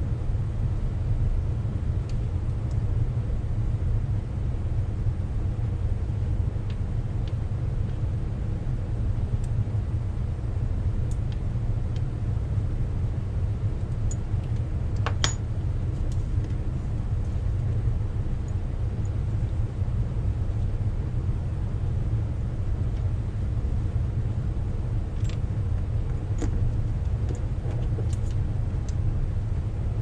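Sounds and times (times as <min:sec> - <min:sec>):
low workshop rumble: 0:00.0 - 0:30.0
metallic clink ringing: 0:15.1 - 0:15.4.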